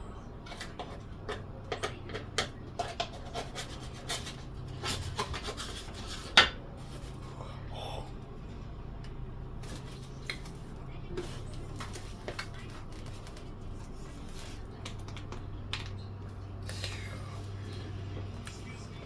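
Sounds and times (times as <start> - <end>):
low steady hum: 0.0 - 19.0
dishes clicking and scraping: 0.3 - 6.7.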